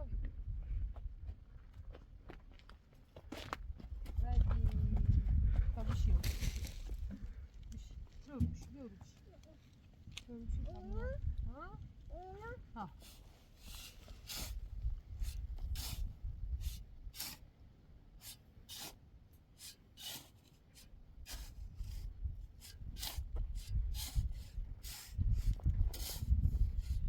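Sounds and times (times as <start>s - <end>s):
short scraping strokes: 13.0s - 17.5s, 18.2s - 27.0s.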